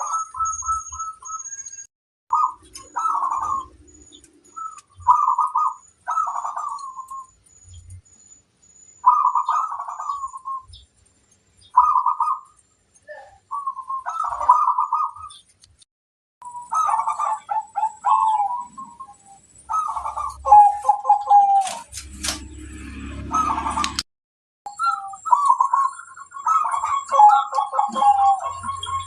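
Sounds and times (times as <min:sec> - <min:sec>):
doves cooing: 0:02.3 - 0:07.4, 0:09.0 - 0:10.8, 0:11.8 - 0:15.4, 0:16.4 - 0:22.6, 0:24.7 - 0:29.0.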